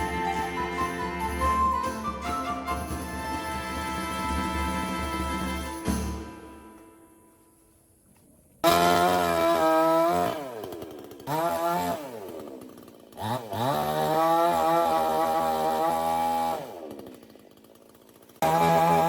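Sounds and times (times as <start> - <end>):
chainsaw engine revving: 8.6 - 19.0.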